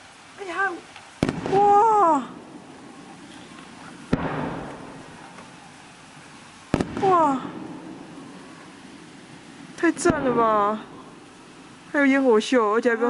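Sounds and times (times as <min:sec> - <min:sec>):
distant firework bangs: 0:00.9 - 0:12.1
person exclaiming: 0:01.5 - 0:02.4, 0:07.0 - 0:07.6.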